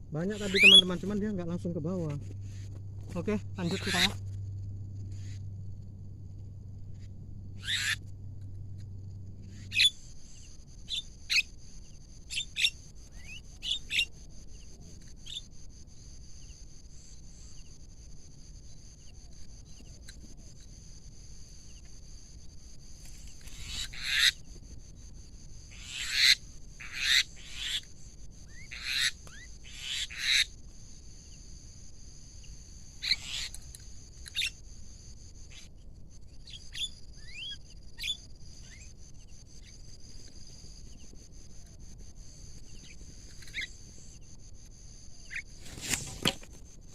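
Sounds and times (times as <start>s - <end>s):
birds giving harsh calls: 0.2s - 1.4s, 2.0s - 4.4s, 5.1s - 5.4s, 6.9s - 8.1s, 9.5s - 10.0s, 23.3s - 24.5s, 25.7s - 27.9s, 28.5s - 30.5s, 33.0s - 33.6s, 43.4s - 43.8s.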